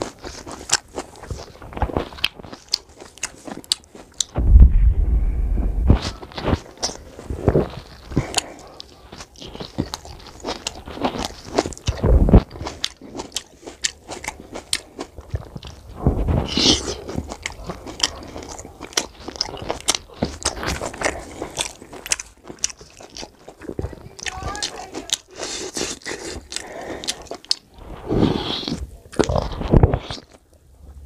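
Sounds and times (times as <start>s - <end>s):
wet chewing with lip smacks: 0.0s - 4.4s, 6.1s - 30.4s
fingers squishing rice: 6.0s - 30.4s.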